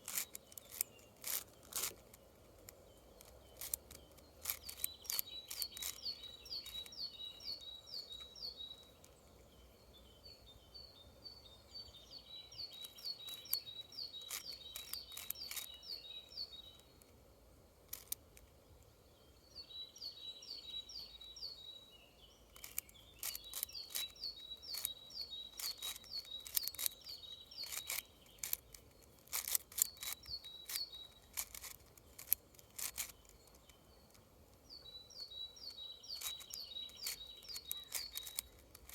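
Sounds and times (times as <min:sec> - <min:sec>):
plastic clicks of cube puzzle: 0:00.0 - 0:07.0, 0:12.7 - 0:15.9, 0:17.8 - 0:18.6, 0:22.5 - 0:34.6, 0:35.7 - 0:38.9
bird singing high chirps: 0:02.9 - 0:17.0, 0:19.1 - 0:38.9.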